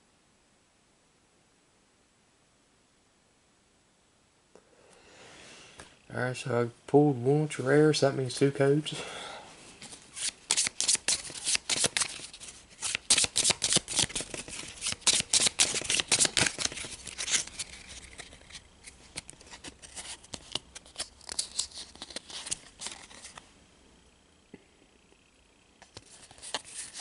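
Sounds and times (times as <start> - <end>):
cards clicking and rustling: 9.8 - 23.4, 25.8 - 27.0.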